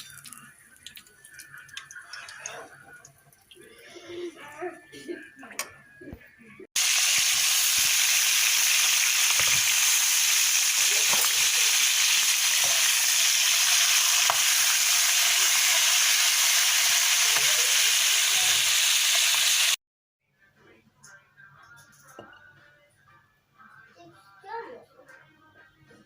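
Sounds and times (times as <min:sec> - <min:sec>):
food deep-frying in hot oil: 0:06.8 - 0:19.8.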